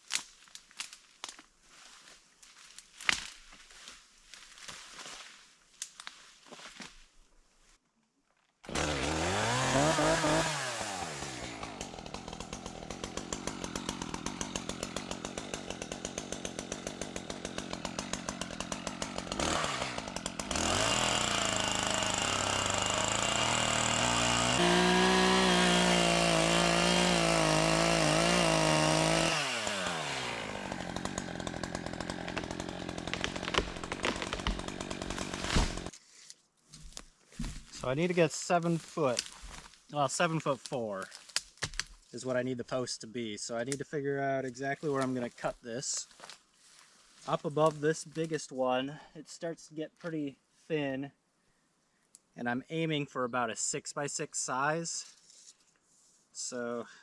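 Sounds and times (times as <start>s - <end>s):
chainsaw engine revving and idling: 8.7s - 35.9s.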